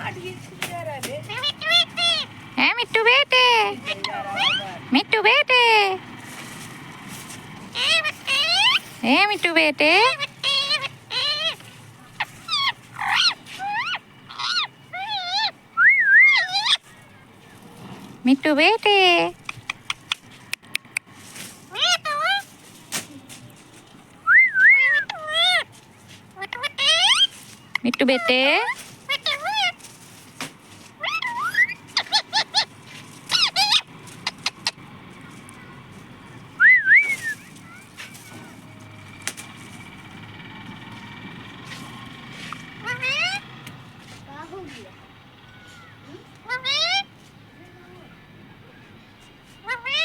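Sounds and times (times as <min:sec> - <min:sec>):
parrot squawking: 0:01.2 - 0:04.9, 0:07.7 - 0:17.2, 0:21.7 - 0:22.5, 0:24.3 - 0:25.7, 0:26.4 - 0:29.8, 0:31.0 - 0:34.8, 0:41.6 - 0:43.5, 0:45.5 - 0:47.1, 0:49.6 - 0:50.0
parrot whistling: 0:12.5 - 0:16.8, 0:24.2 - 0:25.6, 0:31.0 - 0:32.7, 0:36.6 - 0:37.6.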